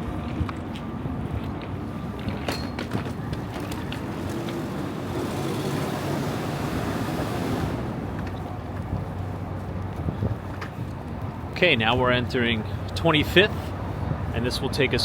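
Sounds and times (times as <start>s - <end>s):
vehicle engines running: 0.6s - 15.0s
rushing noise: 1.7s - 11.6s.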